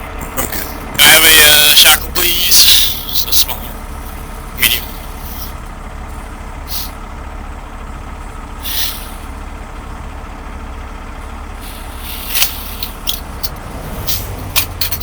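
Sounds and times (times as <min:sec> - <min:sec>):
diesel truck engine idling: 0:00.0 - 0:15.0
short hiss: 0:06.7 - 0:07.0, 0:08.6 - 0:09.3, 0:11.6 - 0:13.1.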